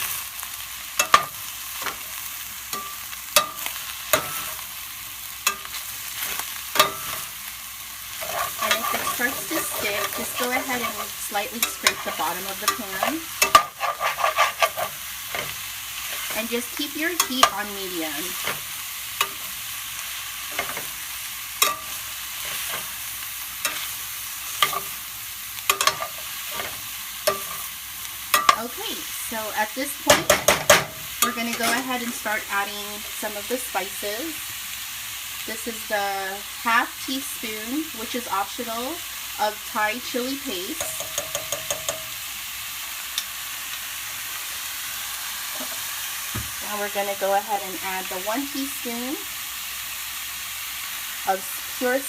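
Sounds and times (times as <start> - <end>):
food sizzling in a skillet: 0.0 - 52.0
utensil scraping a pan: 8.1 - 19.6, 20.5 - 21.0, 30.1 - 32.2.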